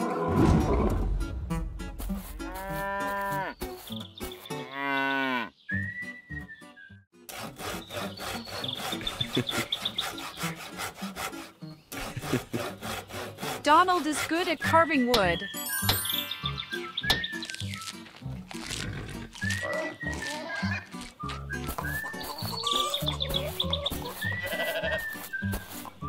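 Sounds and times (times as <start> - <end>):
cow mooing: 2.4 - 3.6, 4.5 - 5.5
hand saw cutting wood: 7.2 - 15.4, 18.3 - 26.0.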